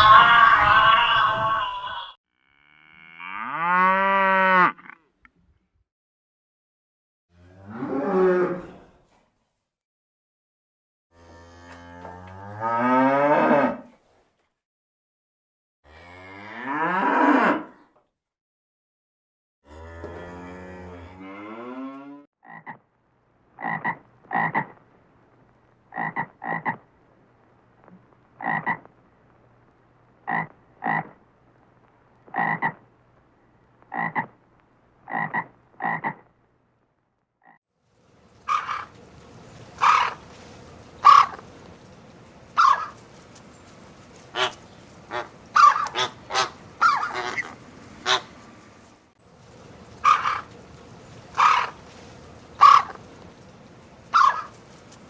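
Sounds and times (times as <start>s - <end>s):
frogs croaking: 22.4s - 22.9s, 23.5s - 24.8s, 25.9s - 27.0s, 27.9s - 29.0s, 30.2s - 31.2s, 32.2s - 32.9s, 33.8s - 34.4s, 35.0s - 36.3s, 38.4s - 39.0s, 39.8s - 40.3s, 41.0s - 41.5s, 42.6s - 43.0s, 44.3s - 48.3s, 49.9s - 50.6s, 51.2s - 51.8s, 52.6s - 53.1s, 54.1s - 54.6s.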